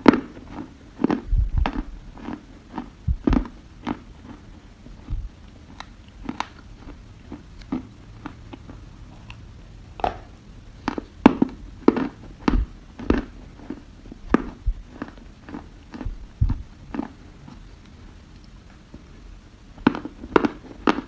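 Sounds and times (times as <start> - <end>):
clay being bitten and chewed: 0.1 - 9.4, 10.8 - 18.6.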